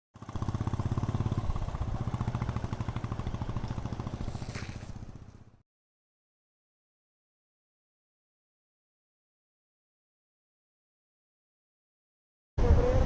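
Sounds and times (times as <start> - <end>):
motorcycle engine idling: 0.2 - 5.6.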